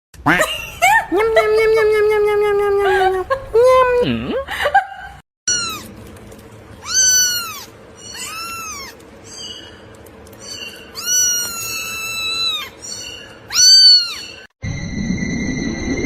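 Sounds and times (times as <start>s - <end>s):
cat meowing: 5.5s - 5.9s, 6.8s - 9.0s, 11.0s - 12.7s, 13.5s - 14.4s.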